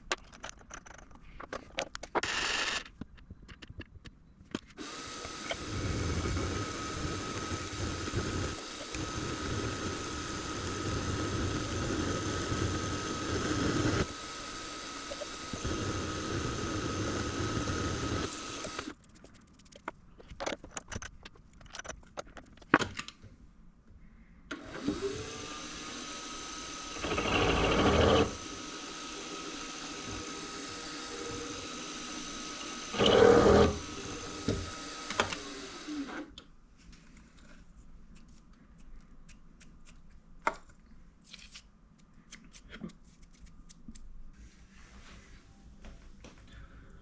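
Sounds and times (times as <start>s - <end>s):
machine-tool motor whine: 4.8s - 18.9s, 24.5s - 36.3s.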